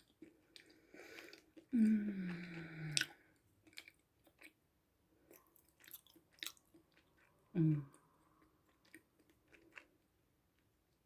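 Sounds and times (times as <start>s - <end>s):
person humming mmm: 1.8s - 3.1s, 7.6s - 7.9s
chewing with wet mouth clicks: 2.3s - 4.6s, 5.3s - 10.0s.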